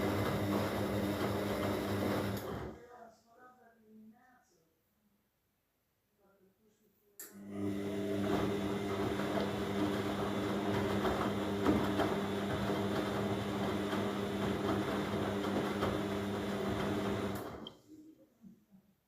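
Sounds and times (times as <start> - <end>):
washing machine drum turning: 0.0 - 2.5, 8.1 - 17.7.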